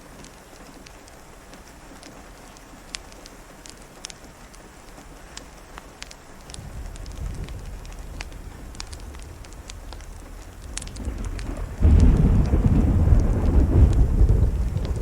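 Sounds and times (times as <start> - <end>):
small sharp ticks: 0.0 - 15.0
steady rain: 0.0 - 15.0
thunder rolling: 6.5 - 15.0.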